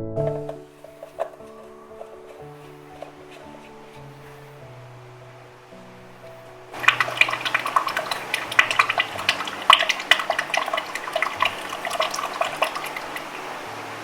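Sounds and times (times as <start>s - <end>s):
oil pouring through funnel: 6.8s - 14.0s.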